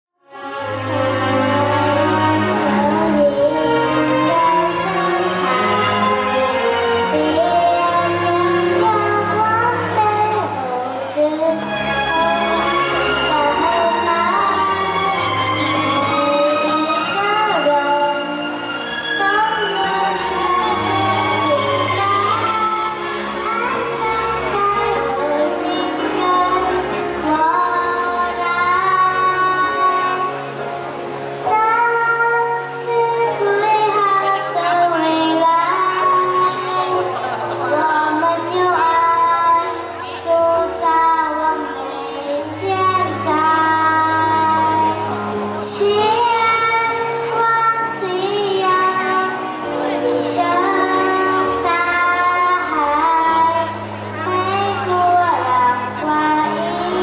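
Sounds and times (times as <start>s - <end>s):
girl singing: 0.2s - 30.4s, 31.4s - 57.0s
backing track: 0.3s - 57.0s.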